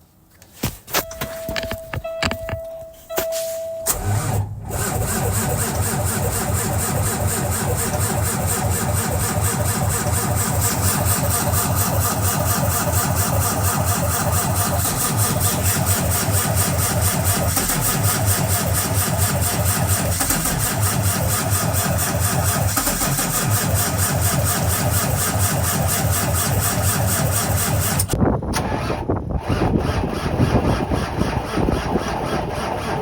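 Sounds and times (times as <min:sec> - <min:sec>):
steady high tone: 0:01.0 - 0:04.4
diesel engine cranking and idling: 0:01.2 - 0:33.0.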